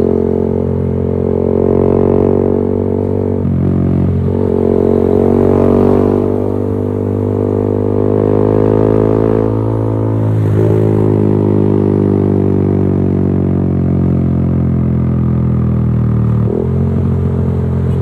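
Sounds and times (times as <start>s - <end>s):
motorcycle engine running loud: 0.0s - 18.0s.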